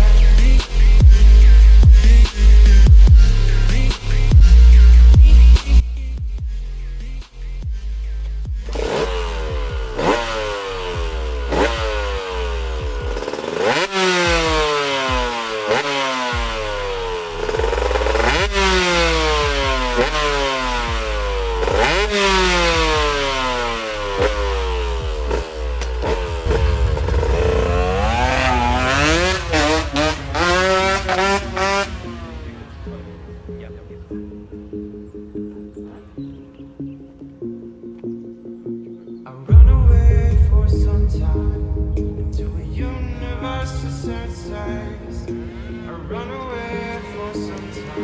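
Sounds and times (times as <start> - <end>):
two-stroke engine revving: 7.3 - 32.9.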